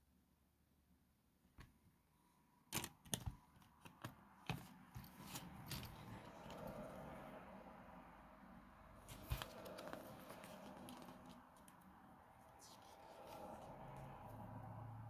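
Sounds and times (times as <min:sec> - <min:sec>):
cd case clicking and tapping: 0:02.8 - 0:04.6.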